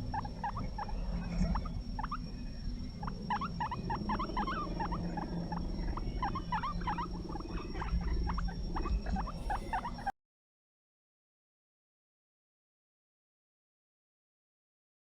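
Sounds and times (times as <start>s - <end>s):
guinea pig squeaking: 0.0s - 10.1s
low steady hum: 0.0s - 10.1s.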